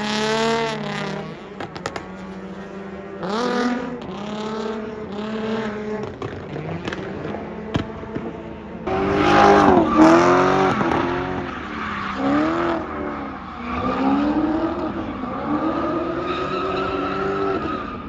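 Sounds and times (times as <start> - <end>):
car engine revving: 0.0 - 17.7
tyres skidding: 8.8 - 18.0.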